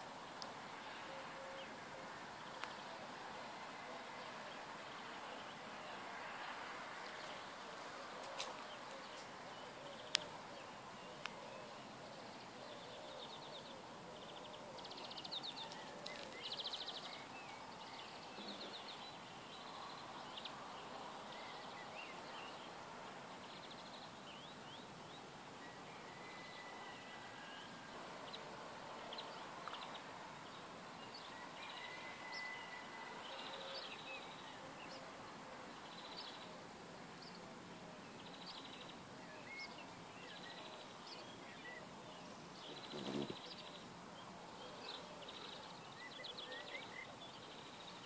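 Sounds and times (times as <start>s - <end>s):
small birds singing: 0.0s - 48.0s.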